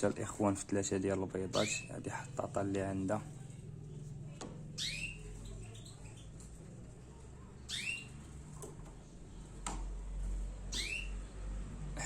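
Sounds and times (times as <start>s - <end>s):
canary chirp: 1.0s - 8.6s, 10.3s - 12.0s.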